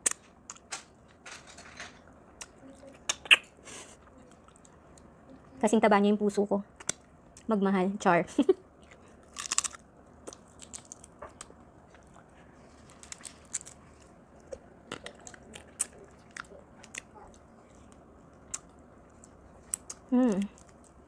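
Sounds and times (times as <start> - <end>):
person chewing crunchy crab: 8.7 - 21.0
shell cracking: 9.3 - 11.5.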